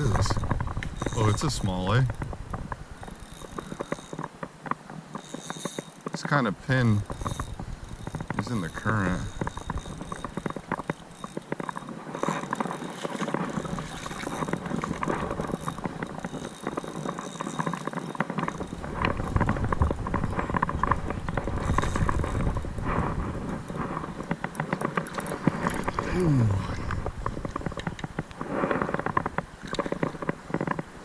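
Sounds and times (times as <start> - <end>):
fishing reel ticking rapidly: 0.0 - 28.2
creek current: 0.0 - 31.0.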